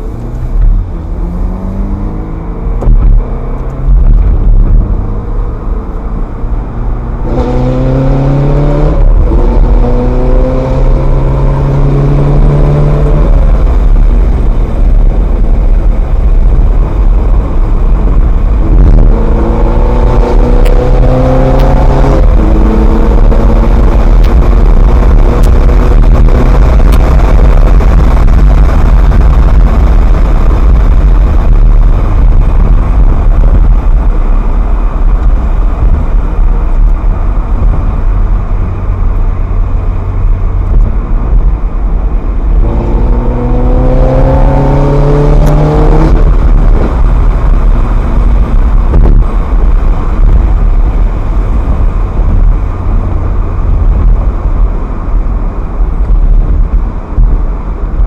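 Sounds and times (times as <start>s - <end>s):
car engine revving: 0.0s - 58.0s
road noise: 0.0s - 58.0s.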